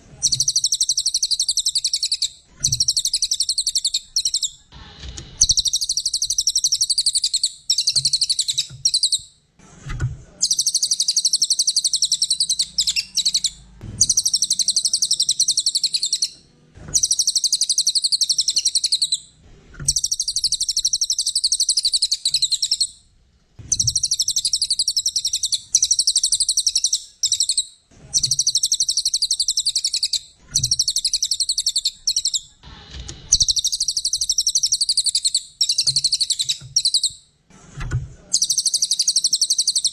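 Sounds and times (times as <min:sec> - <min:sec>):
songbird chattering trills: 0:00.2 - 0:04.6, 0:10.4 - 0:16.4, 0:17.0 - 0:19.2, 0:19.9 - 0:22.9, 0:23.7 - 0:32.6.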